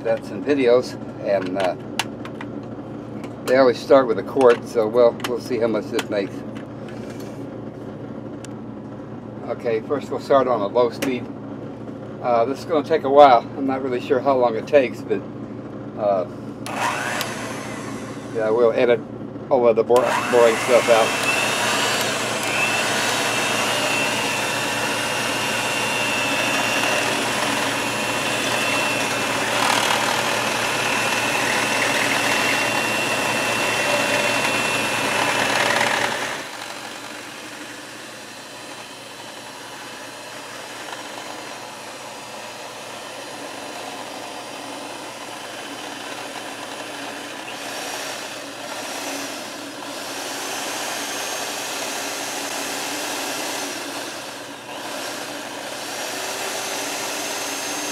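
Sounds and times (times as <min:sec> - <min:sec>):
electric mixer whirring: 0:16.6 - 0:18.7, 0:19.9 - 0:57.9.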